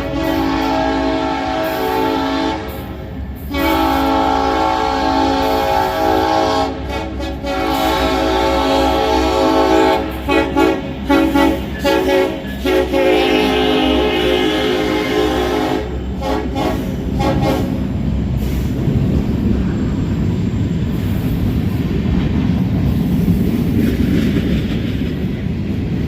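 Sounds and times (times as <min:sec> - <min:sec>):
locomotive air horn blasts: 0:00.0 - 0:18.6
freight train rumbling past: 0:00.0 - 0:26.0.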